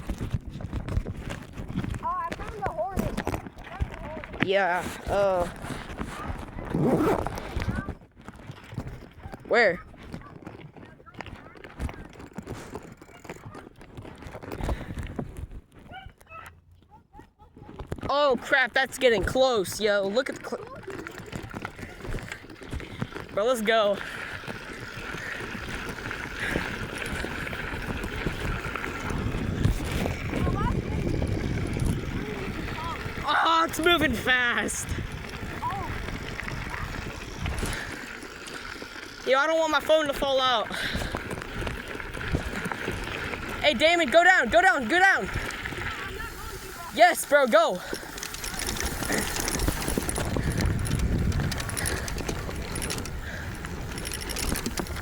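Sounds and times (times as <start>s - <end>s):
wind buffeting microphone: 0.0s - 16.1s, 24.0s - 38.8s, 40.6s - 47.0s, 47.8s - 55.0s
phone rattling and clattering: 47.6s - 55.0s.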